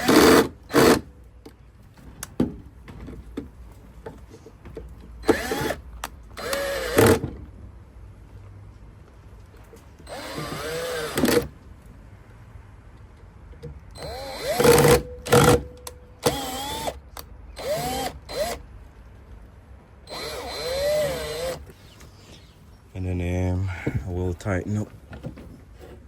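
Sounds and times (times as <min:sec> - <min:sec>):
cordless drill motor whine: 0:05.2 - 0:05.8, 0:06.4 - 0:07.2, 0:10.1 - 0:11.5, 0:14.0 - 0:15.6, 0:16.2 - 0:17.0, 0:17.6 - 0:18.6, 0:20.1 - 0:21.7.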